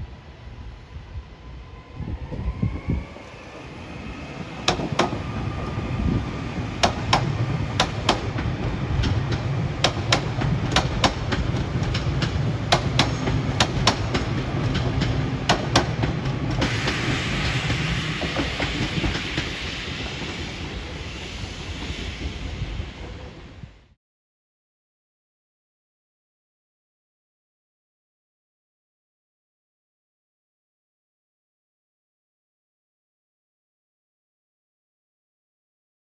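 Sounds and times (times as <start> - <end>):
train rail rumble: 0.0 - 24.0
train wheels clicking: 4.4 - 5.8, 6.7 - 23.2
broad hiss: 16.6 - 23.0.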